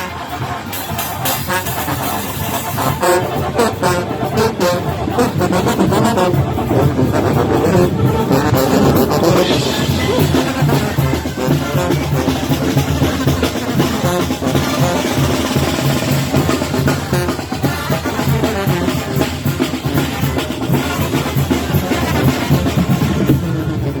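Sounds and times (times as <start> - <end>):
band playing live music: 0.0 - 24.0
drums beating: 0.0 - 24.0.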